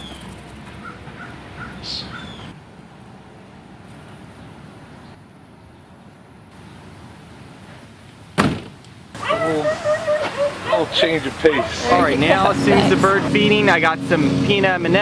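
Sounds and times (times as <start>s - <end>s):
bird calls: 0.0s - 2.6s
distant traffic rumble: 0.0s - 15.0s.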